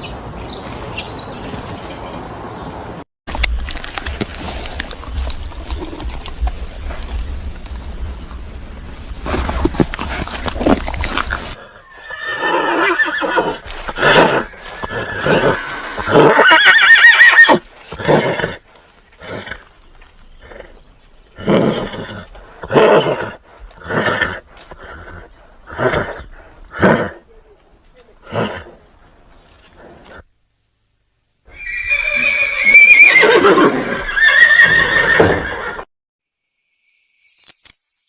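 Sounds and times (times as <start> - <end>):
horse whinnying: 10.4 - 18.6, 31.5 - 35.9.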